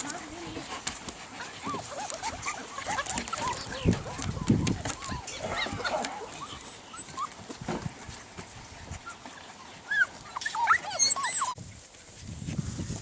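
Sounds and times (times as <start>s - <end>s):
puppy whimpering: 1.4s - 7.5s, 9.0s - 11.6s.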